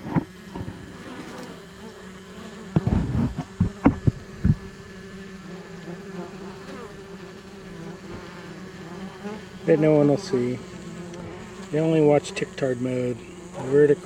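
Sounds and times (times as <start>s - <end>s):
honey bees buzzing: 0.0s - 14.0s
sharp knocks: 2.8s - 4.7s.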